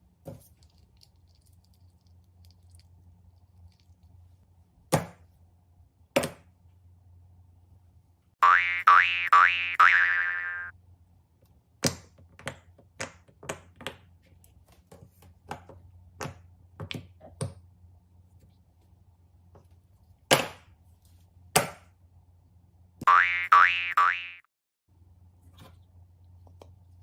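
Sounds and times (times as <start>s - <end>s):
faint low hum: 0.0s - 8.4s, 24.9s - 27.0s
cartoon boing sound effect: 8.4s - 10.7s, 23.1s - 24.5s.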